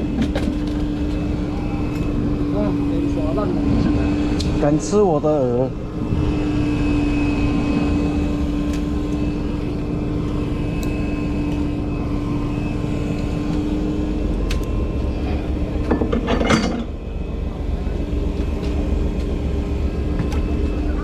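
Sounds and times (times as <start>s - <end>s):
boat engine droning: 0.0s - 21.0s
metallic clatter: 15.9s - 17.0s.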